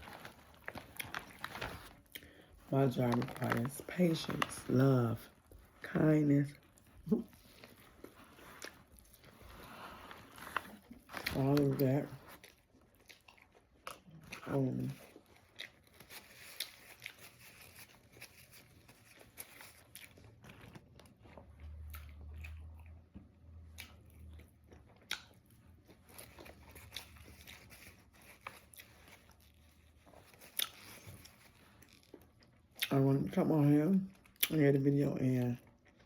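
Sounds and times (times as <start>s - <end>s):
chewing and biting food: 6.6s - 32.9s, 35.6s - 36.0s.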